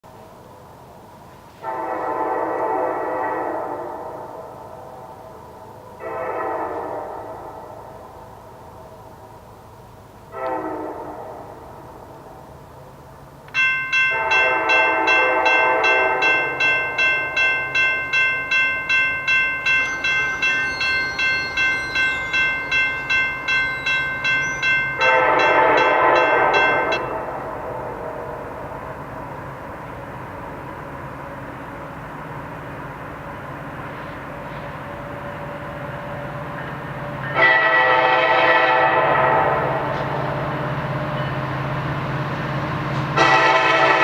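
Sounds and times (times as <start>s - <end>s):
train rumbling past: 0.1s - 44.0s
locomotive air horn blasts: 1.5s - 4.2s, 6.0s - 7.8s, 10.3s - 11.8s, 14.1s - 16.5s, 25.0s - 28.4s, 37.2s - 40.4s, 43.2s - 44.0s
crossing bell ringing: 13.5s - 28.4s.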